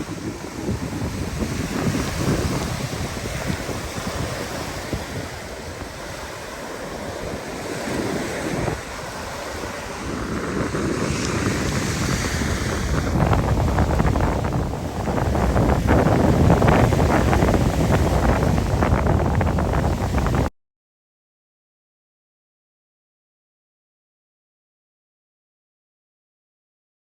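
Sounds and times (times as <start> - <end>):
rushing splashing water: 0.0 - 20.5
wind buffeting microphone: 0.0 - 20.5.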